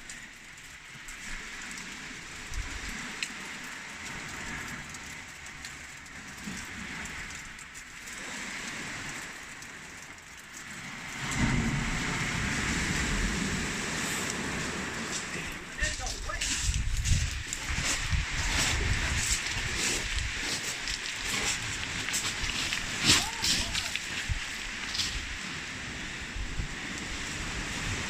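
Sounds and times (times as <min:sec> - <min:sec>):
wind buffeting microphone: 0:11.2 - 0:28.0.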